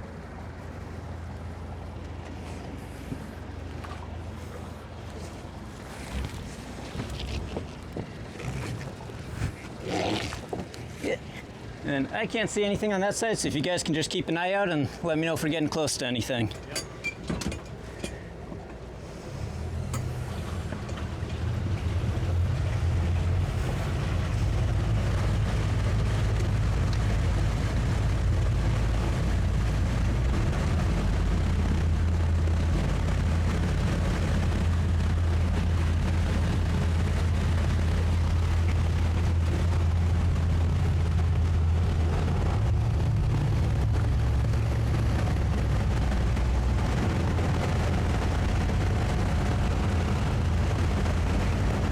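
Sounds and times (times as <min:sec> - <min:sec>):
outboard engines droning: 0:00.0 - 0:51.9.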